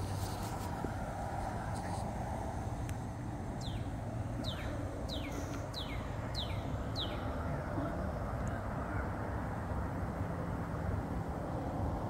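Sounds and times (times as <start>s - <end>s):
bird singing downward notes: 3.6s - 9.1s.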